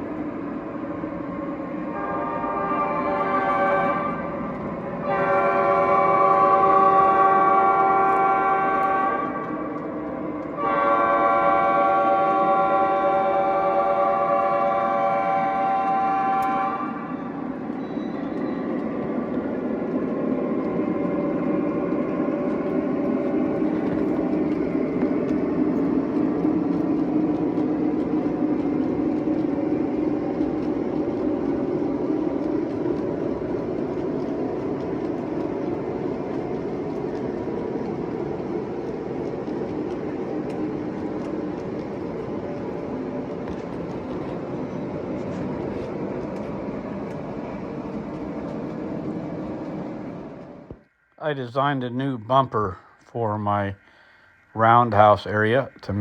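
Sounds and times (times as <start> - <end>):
model train rumbling on track: 0.0 - 56.0.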